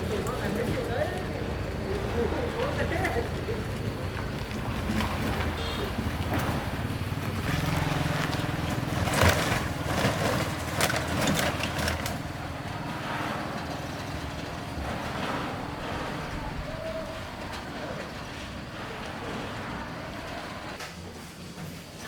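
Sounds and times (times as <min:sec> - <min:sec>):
low engine hum: 0:00.0 - 0:20.8
sharp clatters and knocks: 0:03.8 - 0:21.0.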